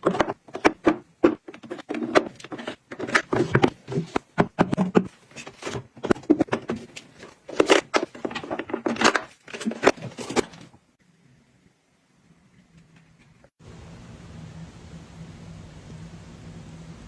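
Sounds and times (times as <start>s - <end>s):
small containers clicking and knocking: 0.0s - 10.8s.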